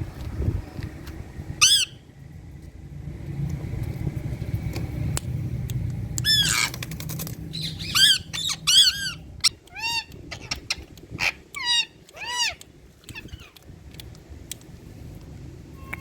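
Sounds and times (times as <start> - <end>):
parakeet squawking: 1.6 - 2.0, 6.2 - 6.8, 7.5 - 13.6.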